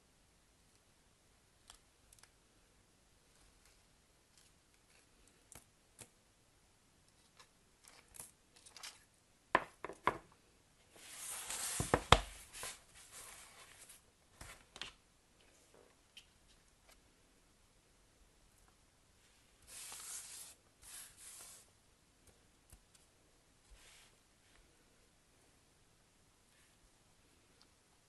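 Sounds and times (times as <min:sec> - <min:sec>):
rustling and scraping: 0:10.9 - 0:17.0, 0:19.3 - 0:21.7.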